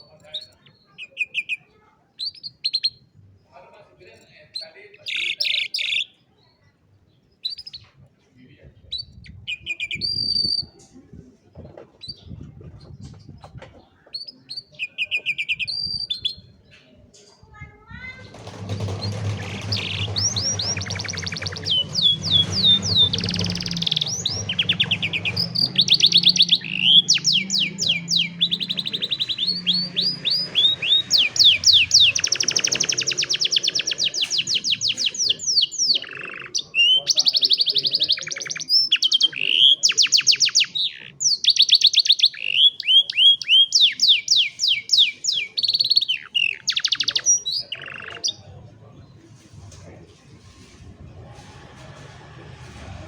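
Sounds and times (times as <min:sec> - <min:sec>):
canary singing rapid trills: 0:18.2 - 0:48.5.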